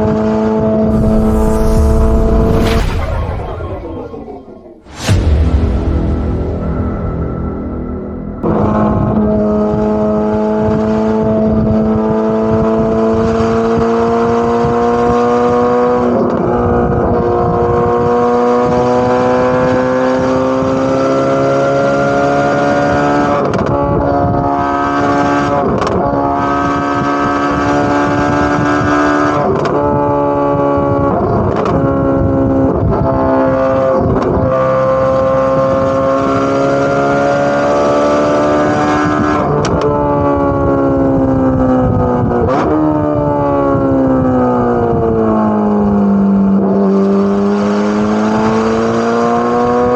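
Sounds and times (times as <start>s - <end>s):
car exhaust accelerating: 5.8s - 28.7s, 29.4s - 49.9s.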